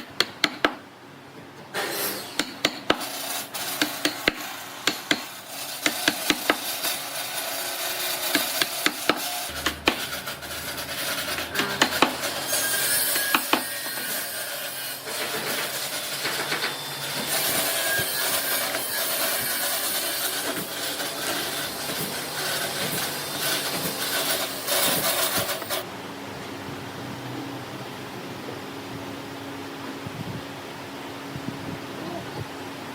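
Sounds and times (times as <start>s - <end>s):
scraping strokes on wood: 1.8s - 25.8s.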